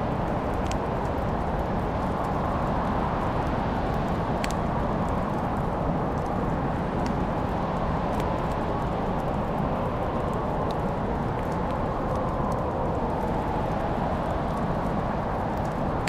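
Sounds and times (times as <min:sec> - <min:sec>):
fire pops and ticks: 0:00.2 - 0:02.4, 0:04.1 - 0:07.5, 0:08.1 - 0:09.6.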